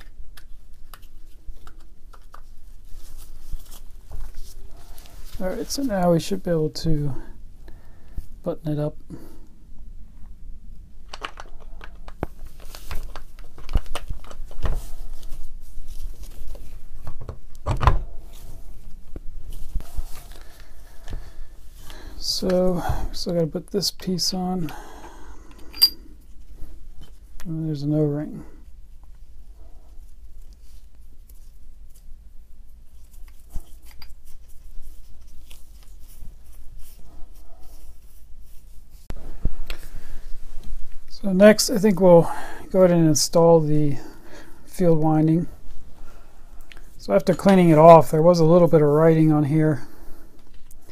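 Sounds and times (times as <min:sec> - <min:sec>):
tool parts clicking and knocking: 0:25.7 - 0:26.0.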